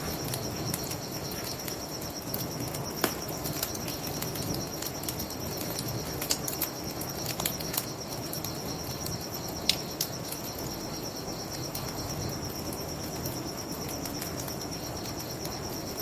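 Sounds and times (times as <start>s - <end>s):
bonfire crackling and popping: 0.0s - 10.7s
crickets chirping: 0.0s - 16.0s.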